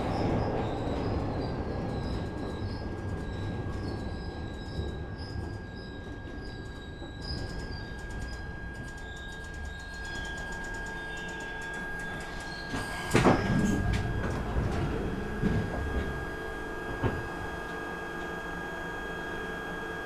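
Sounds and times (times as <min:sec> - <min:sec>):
train humming: 0:07.0 - 0:20.0
train doors shutting with a thud: 0:10.0 - 0:19.9.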